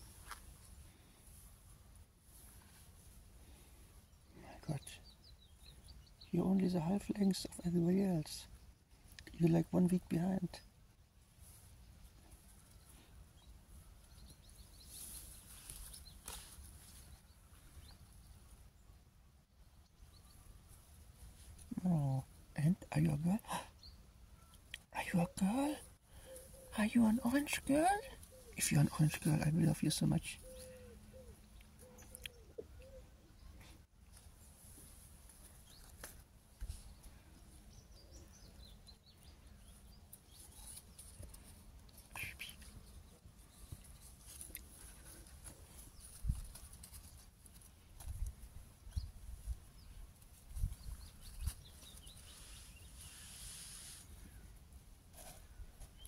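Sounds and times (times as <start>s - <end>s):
sharp rustle: 14.8s - 17.2s, 50.5s - 54.2s
faint bird chirps: 30.4s - 33.8s.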